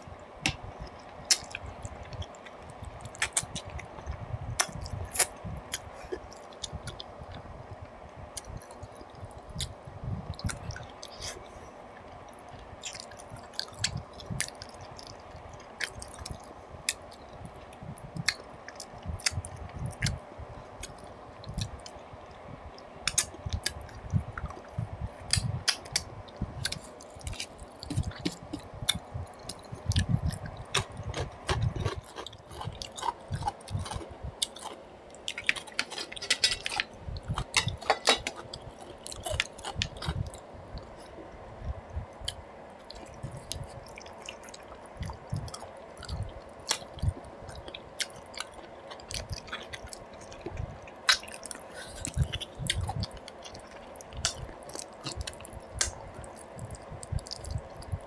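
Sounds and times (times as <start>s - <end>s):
person chewing wetly: 26.6s - 41.2s, 42.2s - 58.0s.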